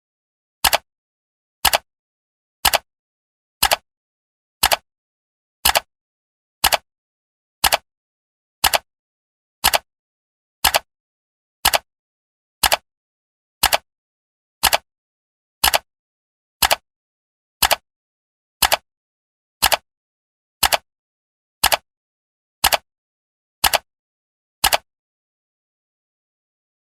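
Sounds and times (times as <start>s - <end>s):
clock ticking: 2.6s - 2.8s, 3.6s - 3.8s, 4.6s - 4.8s, 5.6s - 5.9s, 6.6s - 6.8s, 7.6s - 7.8s, 8.6s - 8.8s, 9.6s - 9.8s, 12.6s - 12.8s, 13.6s - 13.8s, 14.6s - 14.8s, 15.6s - 15.8s, 16.6s - 16.8s, 17.6s - 17.8s, 18.6s - 18.8s, 19.6s - 19.8s, 20.6s - 20.8s, 21.6s - 21.8s, 22.6s - 22.8s, 23.6s - 23.8s.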